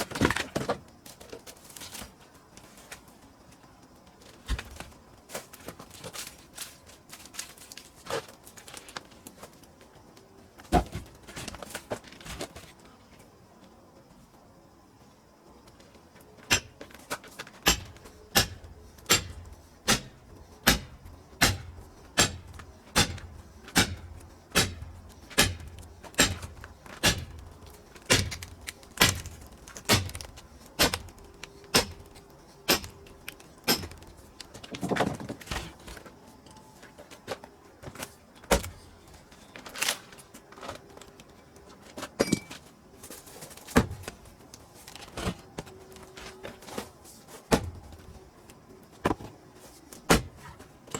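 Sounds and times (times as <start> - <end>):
blows striking firewood: 17.6 - 32.1.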